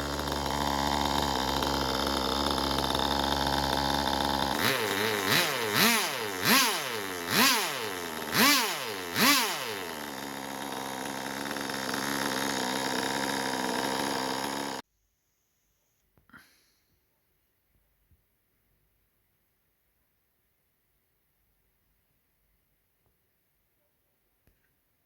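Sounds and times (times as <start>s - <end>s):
two-stroke nitro engine running: 0.0s - 14.8s.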